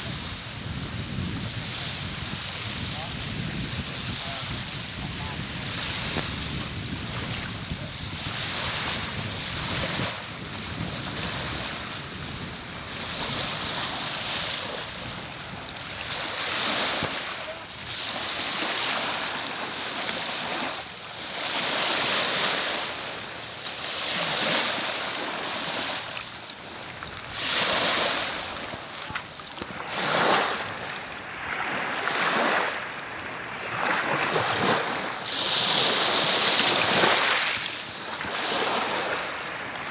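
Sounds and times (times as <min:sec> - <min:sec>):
wind buffeting microphone: 0:00.0 - 0:18.0, 0:26.6 - 0:39.9
sea waves washing onto beach: 0:00.0 - 0:39.9.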